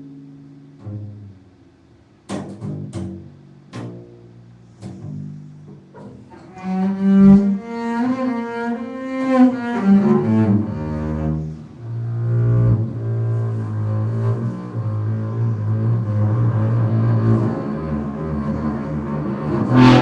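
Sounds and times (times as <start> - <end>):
plucked string notes: 0.0 - 6.7, 18.9 - 20.0
bowed low string notes: 0.0 - 20.0.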